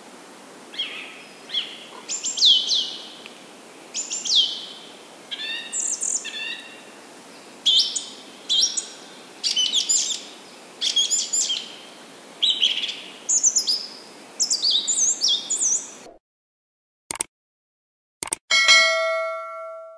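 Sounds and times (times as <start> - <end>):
steady background hiss: 0.0 - 16.1
bird chirping: 0.8 - 3.2, 4.0 - 6.8, 7.6 - 11.8, 12.4 - 16.2.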